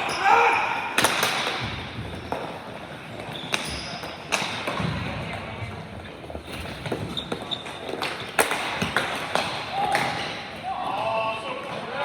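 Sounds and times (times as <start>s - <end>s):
hockey sticks knocking ball: 1.0s - 5.3s, 6.5s - 10.4s.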